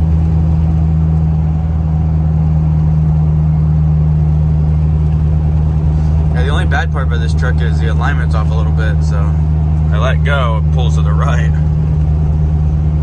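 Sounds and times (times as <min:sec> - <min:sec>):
low engine drone: 0:00.0 - 0:13.0
road noise: 0:00.0 - 0:13.0.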